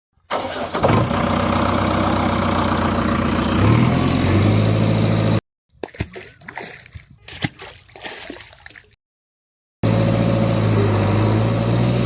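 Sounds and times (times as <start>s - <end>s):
heavy engine idling: 1.0s - 5.4s.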